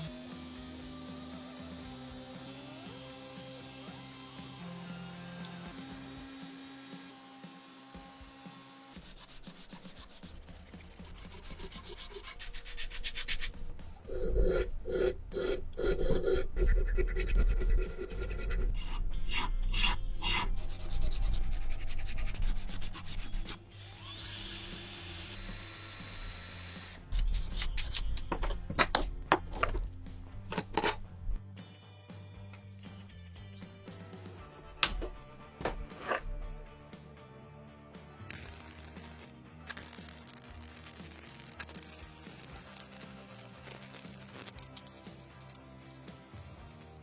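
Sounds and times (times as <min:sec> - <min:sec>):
hand tools filing metal: 0:08.3 - 0:29.8, 0:35.6 - 0:36.2.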